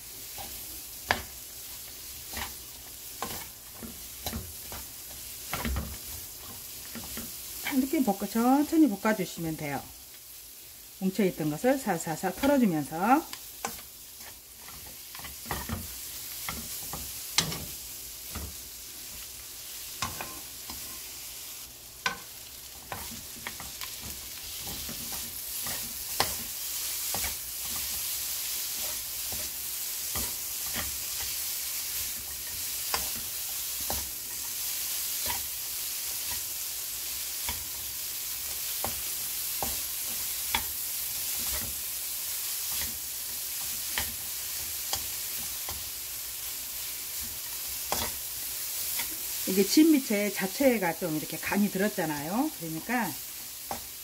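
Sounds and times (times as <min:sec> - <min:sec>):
food sizzling in oil: 0:00.0 - 0:54.0
utensils clicking against pan: 0:20.0 - 0:21.0, 0:22.0 - 0:28.0, 0:32.1 - 0:34.6, 0:47.2 - 0:48.2.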